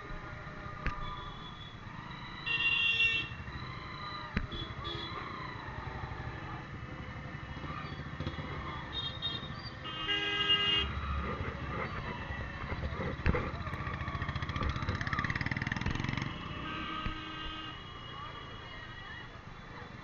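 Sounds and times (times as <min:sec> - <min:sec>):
motorcycle engine running: 0:11.0 - 0:17.5
vehicle horn honking: 0:16.2 - 0:18.6.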